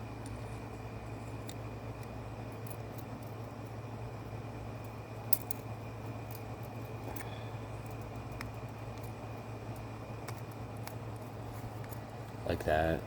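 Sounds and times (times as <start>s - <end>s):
low background hum: 0.0s - 13.0s
small metal parts clicking: 4.8s - 12.0s.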